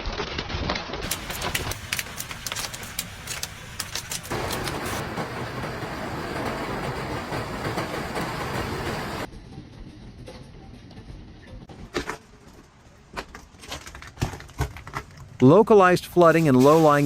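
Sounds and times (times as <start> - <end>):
hail impacts: 1.0 - 9.3
heavy rain downpour: 1.0 - 9.3.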